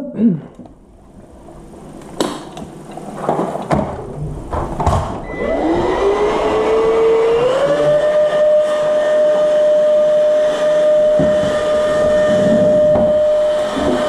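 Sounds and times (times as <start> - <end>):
handling knocks and clicks: 1.9 - 5.2
electric motor whining: 5.3 - 14.0.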